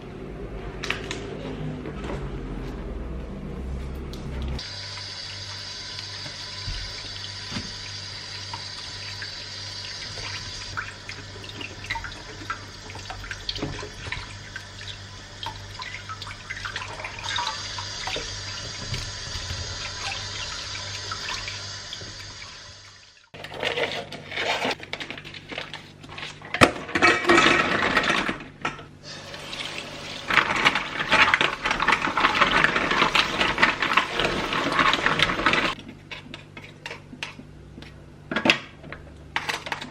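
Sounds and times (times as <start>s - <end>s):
tap water running into sink: 4.6s - 23.2s.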